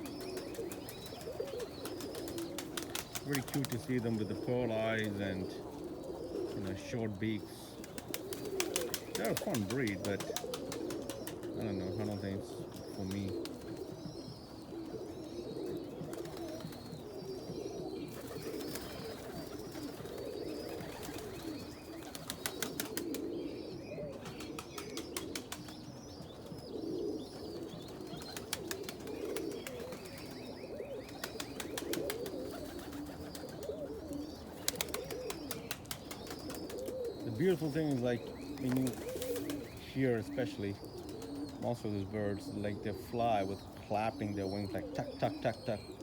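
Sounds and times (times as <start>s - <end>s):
high chirping calls: 0.0s - 46.0s
pigeons cooing: 0.0s - 46.0s.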